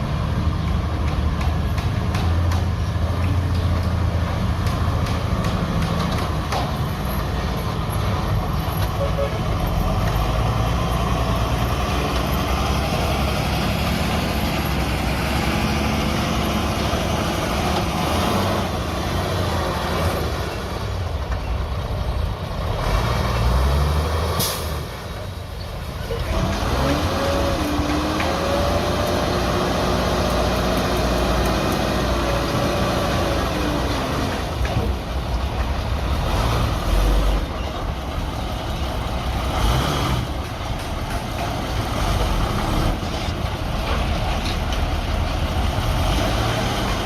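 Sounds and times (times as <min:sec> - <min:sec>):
diesel engines of earthmoving machinery: 0:00.0 - 0:47.0
engine revving up: 0:26.2 - 0:34.5, 0:39.3 - 0:40.4.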